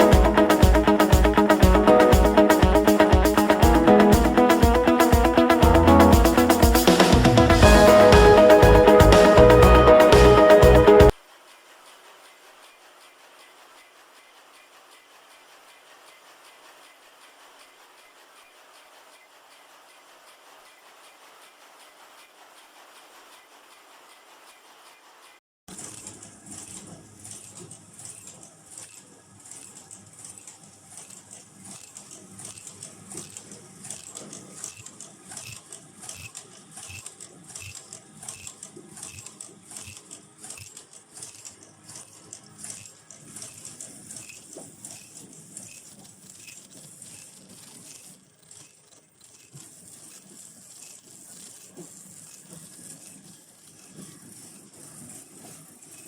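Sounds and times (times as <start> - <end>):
machine clicking and rattling: 25.7 - 56.0.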